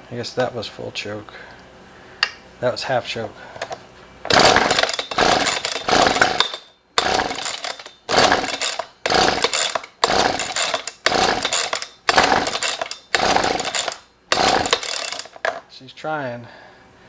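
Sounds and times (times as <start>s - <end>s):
recoil starter cord pulls: 3.6s - 15.6s.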